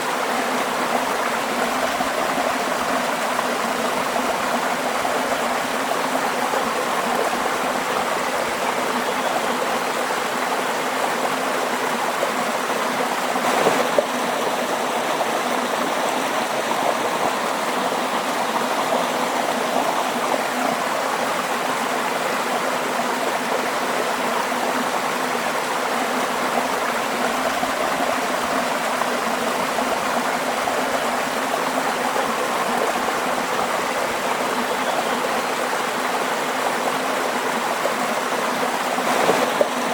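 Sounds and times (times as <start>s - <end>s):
waterfall rushing: 10.3s - 22.2s, 38.5s - 39.9s
water splash: 39.1s - 39.9s.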